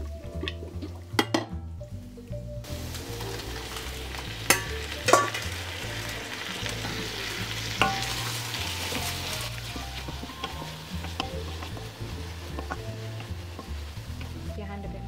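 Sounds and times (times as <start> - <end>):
pasta sizzling in a frying pan: 2.6 - 15.0
wooden spoon knocking on pan: 4.5 - 5.4, 7.8 - 14.5.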